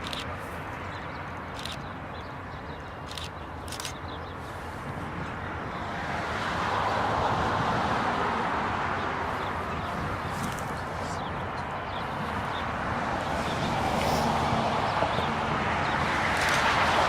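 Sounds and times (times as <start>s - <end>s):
passing vehicle rushing: 12.1s - 17.0s.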